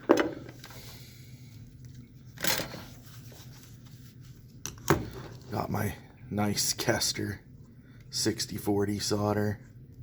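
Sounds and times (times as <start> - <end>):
rustling scrape: 2.2 - 4.6.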